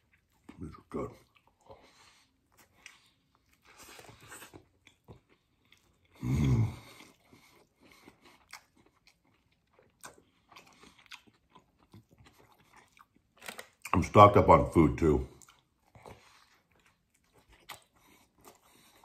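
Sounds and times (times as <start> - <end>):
man chewing food: 0.0 - 19.0
low throat sound: 6.2 - 7.0.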